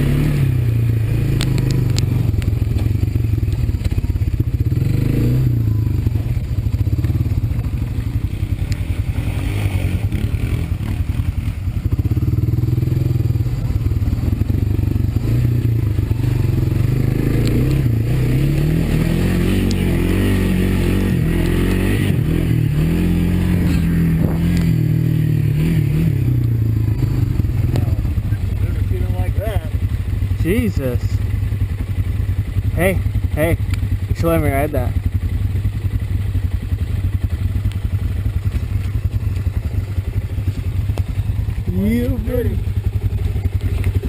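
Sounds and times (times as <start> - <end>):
atv engine revving: 0.0 - 44.0
clatter and scraping: 23.6 - 24.8, 42.9 - 44.0.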